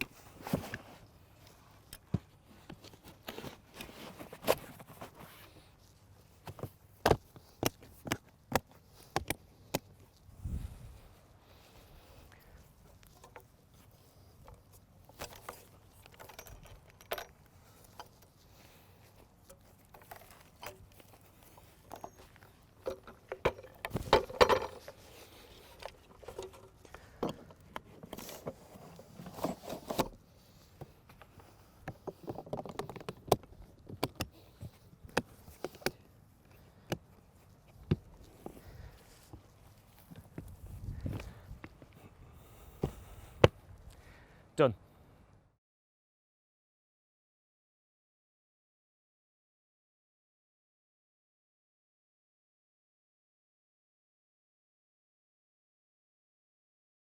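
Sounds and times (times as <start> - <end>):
equipment being handled: 0.0 - 43.8.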